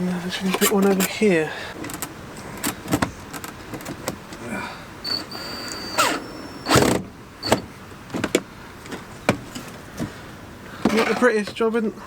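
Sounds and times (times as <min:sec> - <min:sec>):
small clicks and knocks: 0:01.8 - 0:04.3
power drill running: 0:05.0 - 0:07.6.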